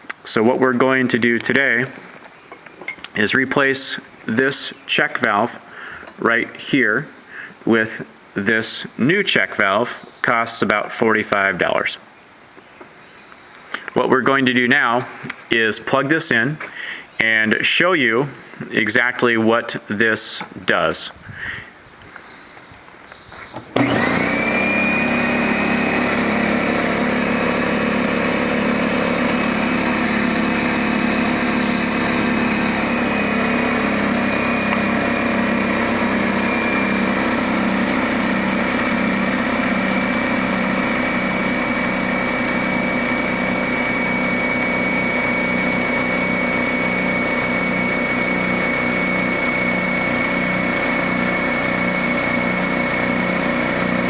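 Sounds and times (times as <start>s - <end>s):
air compressor running: 23.7s - 54.0s.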